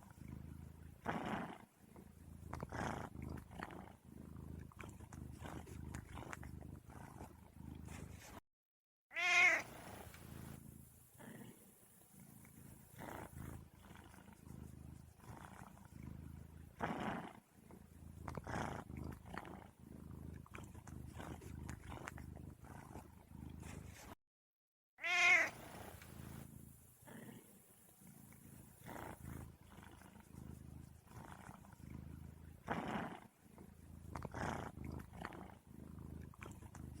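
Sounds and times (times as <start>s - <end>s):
cat purring: 0.0s - 8.4s, 9.2s - 24.2s, 25.0s - 37.0s
cat meowing: 9.1s - 9.7s, 25.0s - 25.6s.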